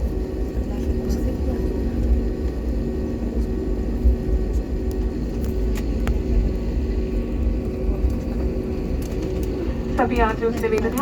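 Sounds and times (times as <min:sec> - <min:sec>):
engine and air system hum: 0:00.0 - 0:11.0
jet airliner cabin rumble: 0:00.0 - 0:11.0.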